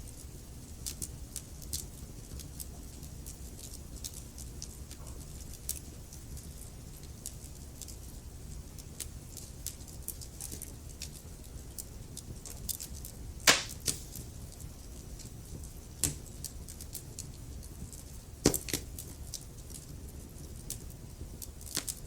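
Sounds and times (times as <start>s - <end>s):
low fire rumble: 0.0s - 22.0s
small fire crackles: 0.0s - 22.0s
loud fire pop: 13.4s - 14.1s.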